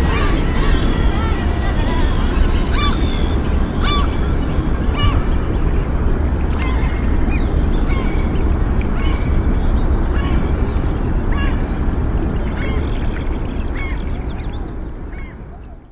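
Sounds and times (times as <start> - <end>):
low rumble: 0.0 - 15.7
bird calling: 0.0 - 15.9.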